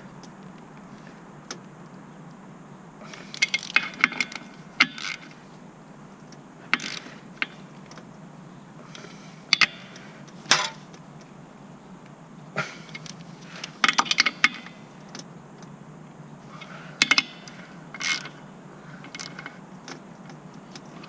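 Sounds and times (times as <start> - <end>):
metal tools clinking: 10.5 - 10.8.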